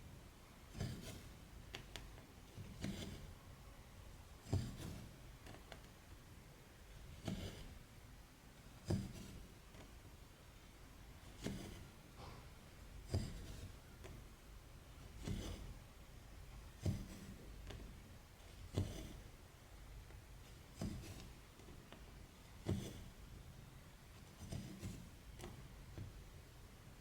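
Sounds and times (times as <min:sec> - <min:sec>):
needle punching through fabric: 0:00.7 - 0:01.9, 0:02.6 - 0:03.4, 0:04.4 - 0:05.8, 0:08.8 - 0:09.8, 0:11.3 - 0:11.9, 0:13.0 - 0:13.8, 0:15.0 - 0:15.8, 0:16.7 - 0:19.2, 0:20.2 - 0:23.2, 0:24.2 - 0:25.6
thread rasping through fabric: 0:00.7 - 0:03.4, 0:04.4 - 0:05.9, 0:07.0 - 0:07.8, 0:08.8 - 0:09.9, 0:11.2 - 0:11.9, 0:13.0 - 0:14.2, 0:15.0 - 0:15.8, 0:16.7 - 0:19.3, 0:20.2 - 0:23.2, 0:24.2 - 0:25.6.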